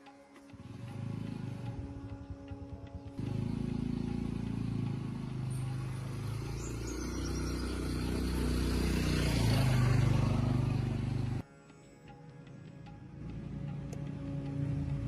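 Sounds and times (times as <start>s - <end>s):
truck engine under load: 3.0s - 11.4s.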